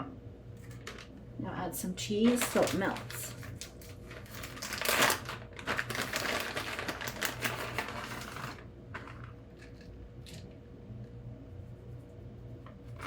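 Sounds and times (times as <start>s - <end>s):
cheese rustling and sprinkling: 2.0s - 10.4s.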